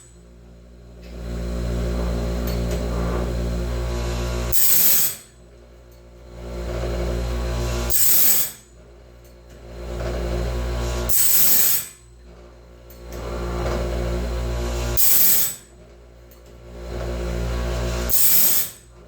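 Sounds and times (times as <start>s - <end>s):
motor hum: 0.0s - 19.0s
loud grinding rasp: 1.5s - 5.3s, 6.5s - 8.7s, 9.8s - 12.0s, 13.2s - 15.7s, 16.8s - 18.9s.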